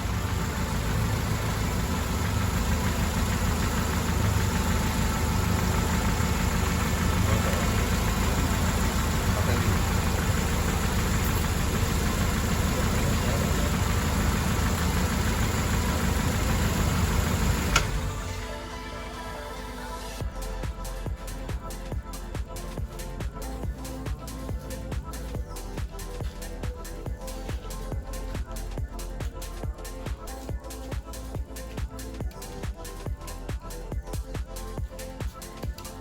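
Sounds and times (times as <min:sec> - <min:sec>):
car engine idling: 0:00.0 - 0:36.0
sharp click: 0:17.7 - 0:18.0.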